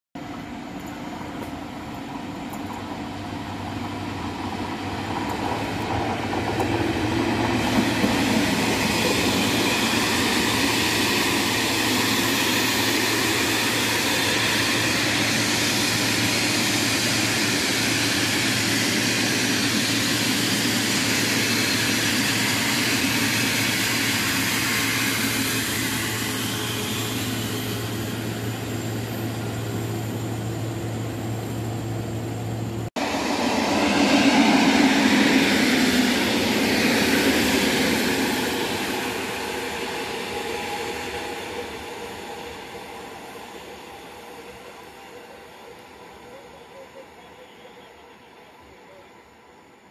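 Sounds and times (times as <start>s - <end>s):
train wheels rolling on rails: 0.2s - 47.1s.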